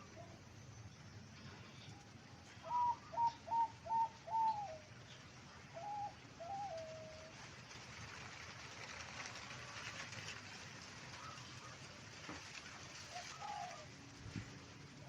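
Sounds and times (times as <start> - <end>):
dove cooing: 2.6 - 4.9, 5.7 - 7.3, 13.0 - 14.0.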